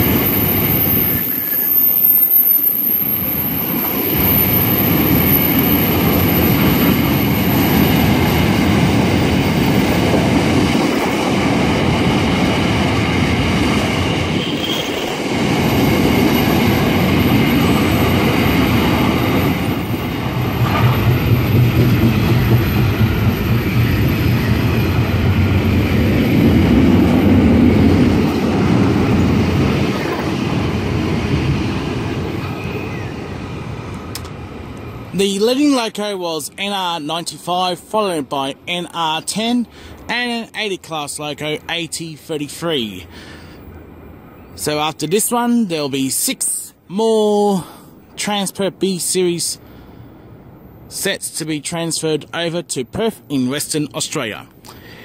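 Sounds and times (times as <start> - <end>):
freight train wheels on rails: 0.0 - 35.6, 36.5 - 40.1.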